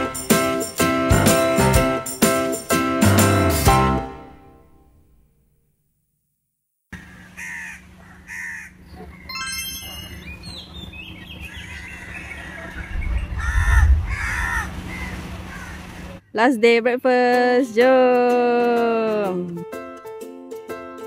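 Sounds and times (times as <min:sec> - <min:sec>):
harsh bird calls: 0:06.9 - 0:16.4.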